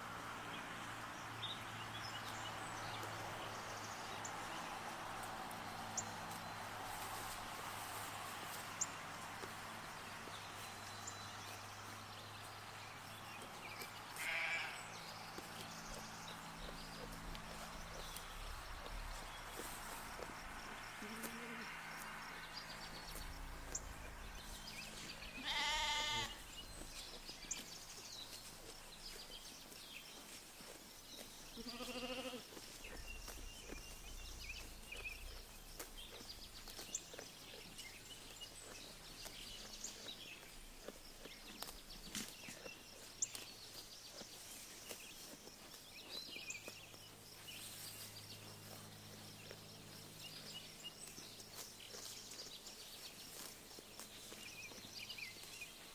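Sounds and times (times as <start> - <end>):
small birds chirping: 0.4 - 55.9
sheep bleating: 14.1 - 14.9, 25.3 - 26.4, 31.6 - 32.5.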